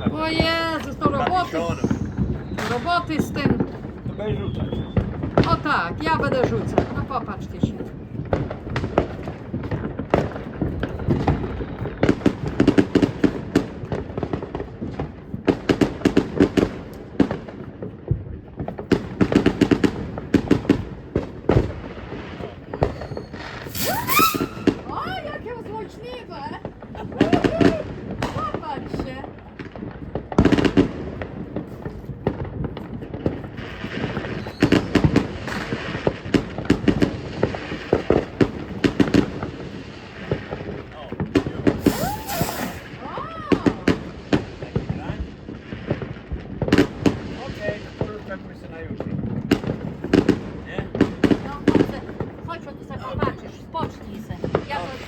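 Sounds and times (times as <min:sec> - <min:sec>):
firecrackers popping: 0:00.0 - 0:55.0
fireworks hiss: 0:00.1 - 0:03.4, 0:21.9 - 0:25.2, 0:41.6 - 0:43.1, 0:54.4 - 0:55.0.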